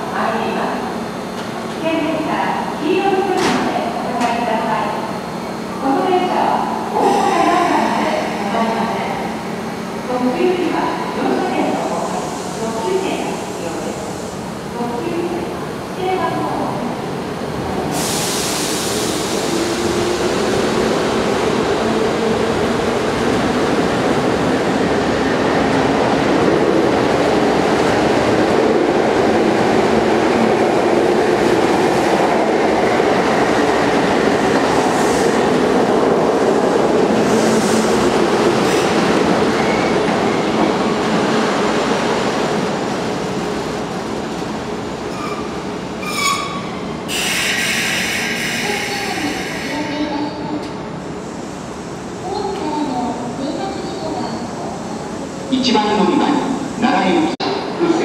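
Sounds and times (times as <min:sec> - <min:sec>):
train air hiss: 0:17.9 - 0:20.1, 0:47.1 - 0:49.9
wheel squeal: 0:45.1 - 0:49.0.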